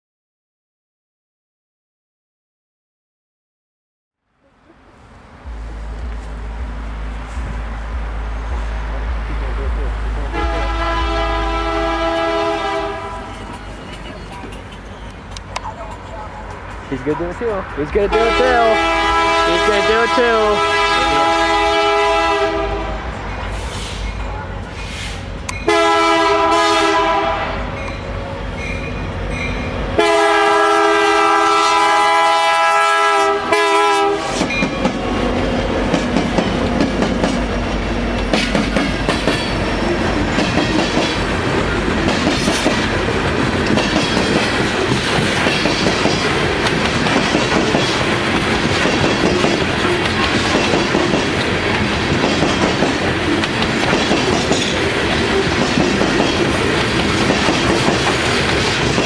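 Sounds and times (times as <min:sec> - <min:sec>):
locomotives passing: 0:04.3 - 0:59.0
diesel locomotive horn blasts: 0:10.2 - 0:13.4, 0:17.8 - 0:27.8, 0:29.9 - 0:34.6
train wheels clickety-clack: 0:12.8 - 0:18.2, 0:34.2 - 0:59.0.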